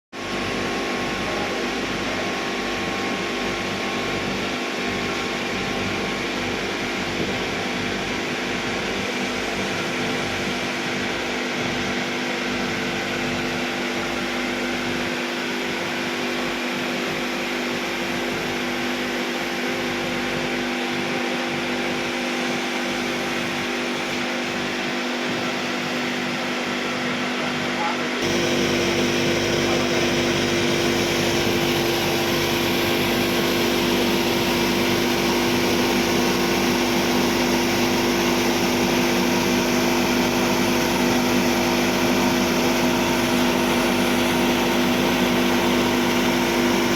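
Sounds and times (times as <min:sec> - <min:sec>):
constant machinery hum: 0:00.2 - 0:46.9
kiln burner hissing: 0:28.2 - 0:46.9.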